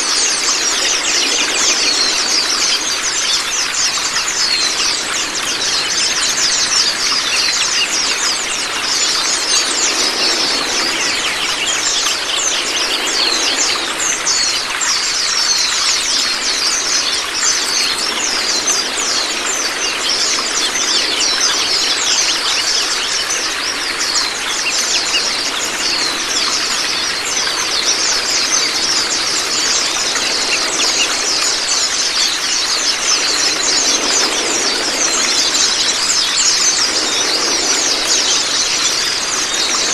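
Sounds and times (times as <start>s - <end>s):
fast high twittering birdsong: 0.0s - 39.9s.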